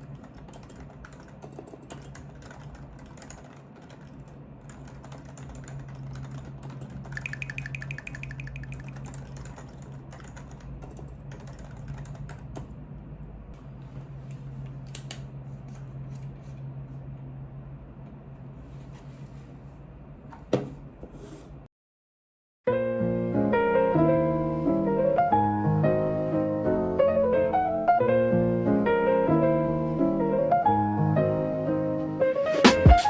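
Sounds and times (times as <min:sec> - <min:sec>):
keyboard typing clicks: 0:00.0 - 0:12.7.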